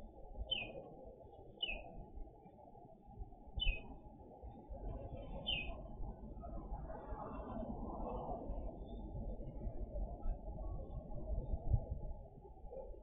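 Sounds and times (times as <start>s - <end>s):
bird chirping: 0.5s - 0.8s, 1.6s - 1.9s, 3.6s - 3.8s, 5.4s - 5.8s.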